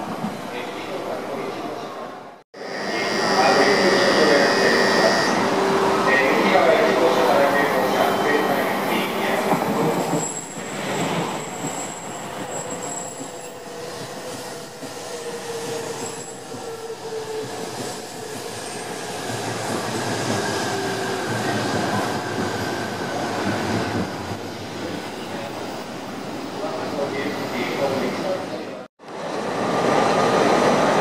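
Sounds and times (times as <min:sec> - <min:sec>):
train rolling rush: 0:00.0 - 0:31.0
whine falling in pitch: 0:02.6 - 0:05.4
high wheel squeal: 0:02.6 - 0:06.8, 0:09.9 - 0:23.3.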